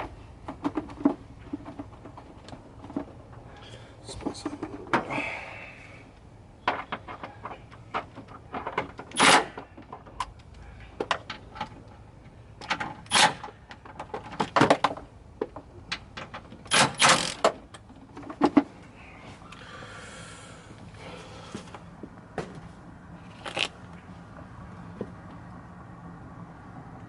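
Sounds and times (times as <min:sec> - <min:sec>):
tools clicking and knocking: 0:12.6 - 0:18.7.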